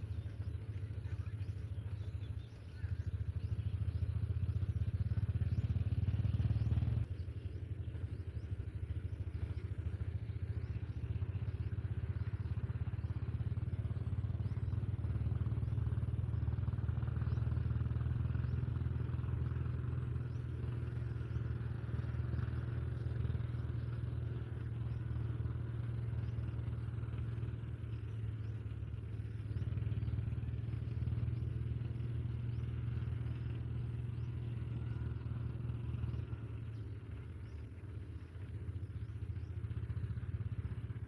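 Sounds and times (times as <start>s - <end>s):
low motor rumble: 0.0s - 41.0s.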